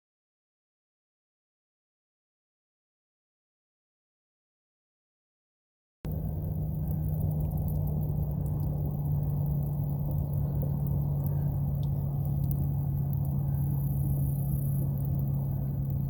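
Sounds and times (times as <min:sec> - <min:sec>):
engine droning steadily: 0:06.1 - 0:16.0.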